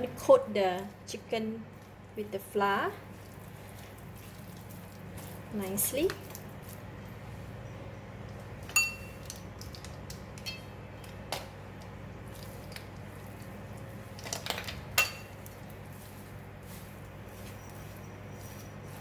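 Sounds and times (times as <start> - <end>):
utensil clinking against tray: 14.2 - 15.6.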